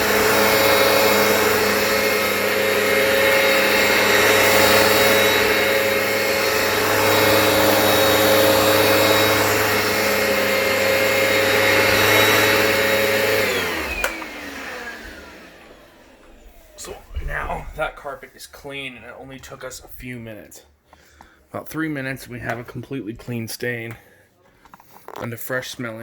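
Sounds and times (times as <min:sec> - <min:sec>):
motor winding down whine: 0:00.0 - 0:18.0
carpet cleaner running: 0:00.0 - 0:18.3.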